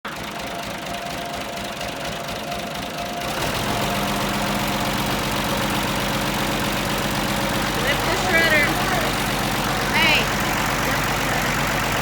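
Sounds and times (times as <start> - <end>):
tractor engine pulsing: 0.0 - 12.0.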